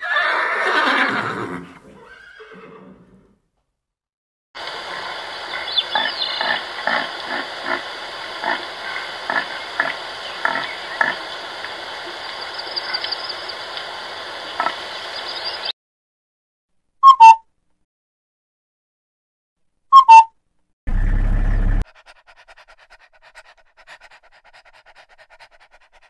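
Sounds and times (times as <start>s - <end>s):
steady hiss: 4.6s - 15.7s.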